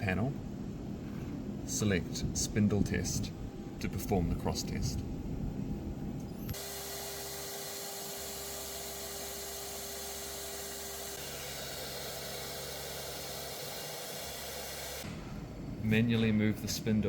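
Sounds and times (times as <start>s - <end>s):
steady tone in hum: 0.0s - 6.6s, 15.0s - 17.0s
cnc machine spindle hiss: 6.5s - 15.1s.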